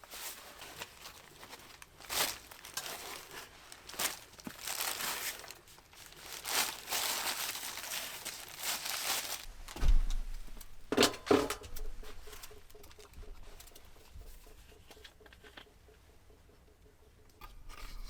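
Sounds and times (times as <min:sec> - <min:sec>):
crinkling rustling handling noise: 0:00.0 - 0:15.7
sharp thumps and clicks: 0:09.7 - 0:18.0.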